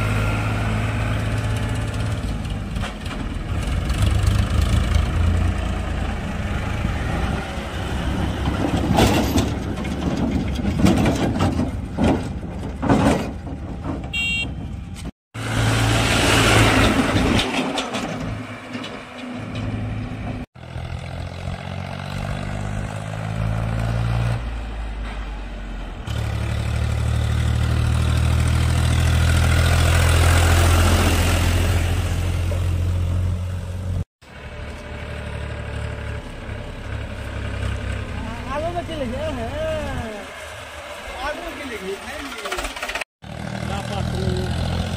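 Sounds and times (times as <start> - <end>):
diesel tractor engines running: 0.0 - 44.9.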